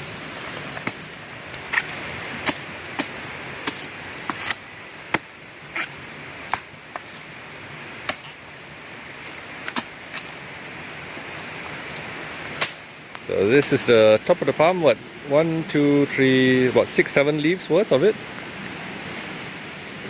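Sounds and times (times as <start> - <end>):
blade chopping into wood: 1.7 - 5.9, 12.6 - 12.8.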